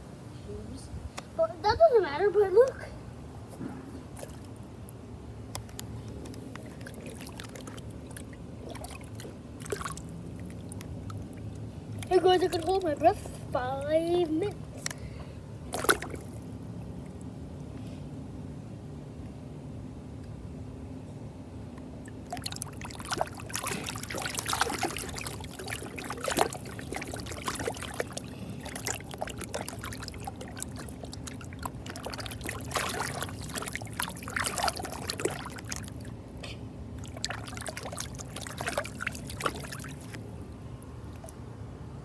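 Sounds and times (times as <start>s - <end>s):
steady low hum: 0.0s - 42.0s
water splashing in a pool: 4.0s - 5.0s, 5.6s - 15.0s, 15.6s - 17.7s, 22.0s - 41.5s.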